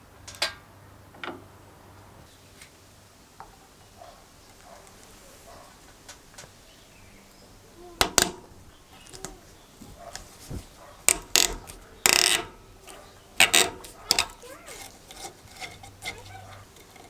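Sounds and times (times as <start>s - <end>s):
metal tool scraping: 9.0s - 17.0s.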